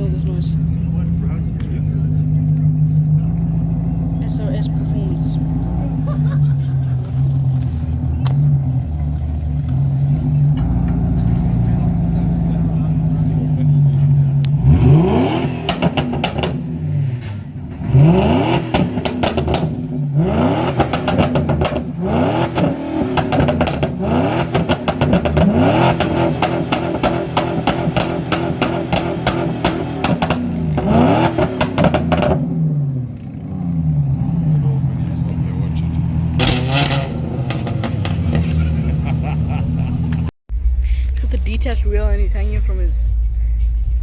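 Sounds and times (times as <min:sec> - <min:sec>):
exhaust pops and crackles: 0:00.0 - 0:04.9, 0:06.8 - 0:14.6, 0:15.4 - 0:17.9, 0:18.5 - 0:32.6, 0:33.9 - 0:38.8, 0:40.0 - 0:40.3
car engine revving: 0:00.0 - 0:44.0.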